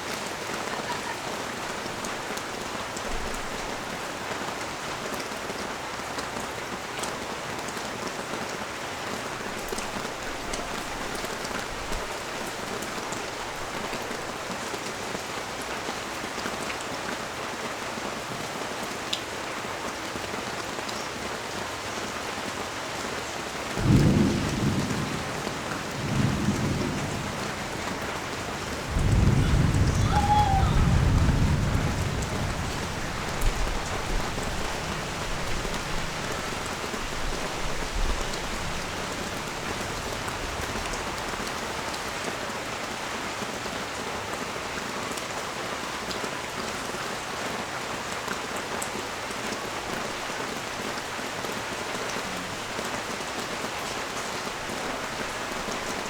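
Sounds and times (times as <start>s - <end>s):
rain falling on street: 0.0s - 56.0s
thunder rumbling: 23.8s - 41.2s.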